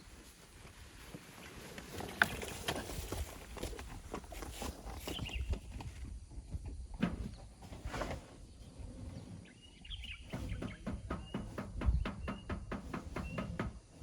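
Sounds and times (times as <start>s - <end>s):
hand tools scraping sand and rock: 7.6s - 14.0s.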